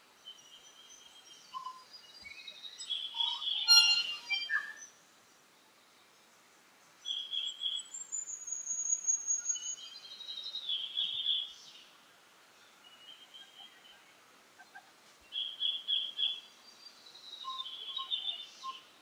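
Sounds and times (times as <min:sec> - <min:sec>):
bird singing: 0:00.2 - 0:04.9, 0:07.0 - 0:11.9, 0:15.3 - 0:19.0.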